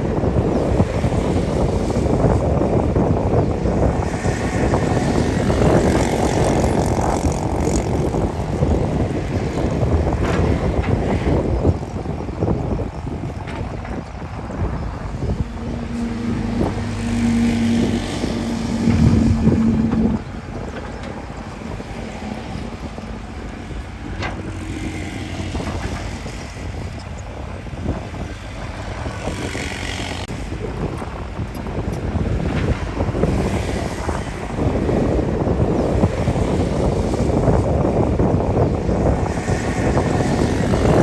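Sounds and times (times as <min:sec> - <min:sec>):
wind buffeting microphone: 0:00.0 - 0:41.0
bulldozer diesel engine: 0:03.9 - 0:35.2.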